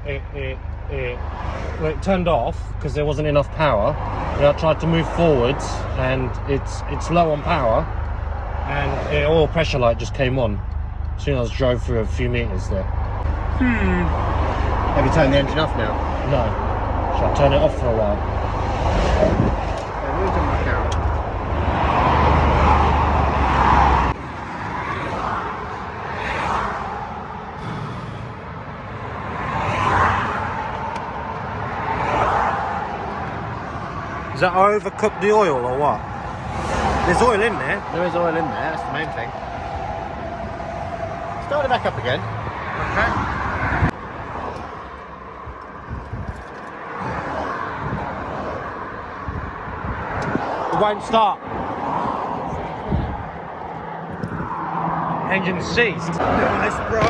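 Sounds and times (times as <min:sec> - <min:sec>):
car engine idling: 0:00.0 - 0:23.5, 0:27.4 - 0:29.4
motorway traffic passing: 0:00.0 - 0:57.0
wind on microphone: 0:19.0 - 0:20.0, 0:45.5 - 0:50.7, 0:51.4 - 0:55.2.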